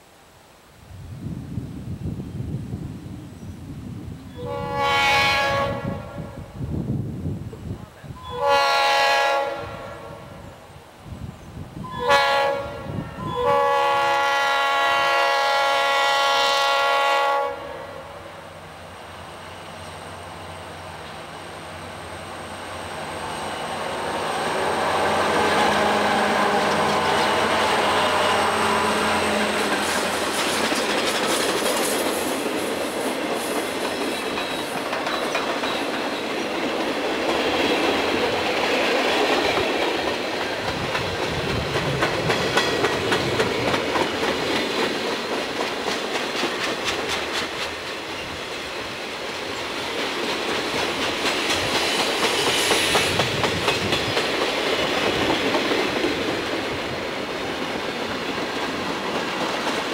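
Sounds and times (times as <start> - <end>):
diesel locomotive engines: 7.5 - 59.9
wheels clacking over rail joints: 29.4 - 48.2.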